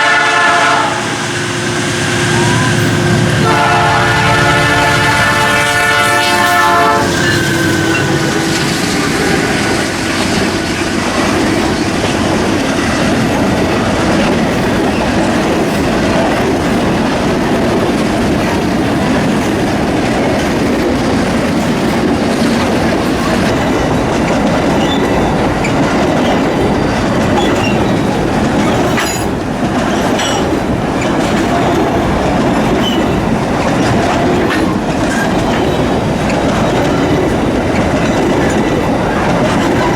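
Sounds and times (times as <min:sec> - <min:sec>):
locomotive horn blast: 0:00.0 - 0:12.2
train rumble: 0:00.0 - 0:39.9
train wheels clattering on rails: 0:00.0 - 0:39.9.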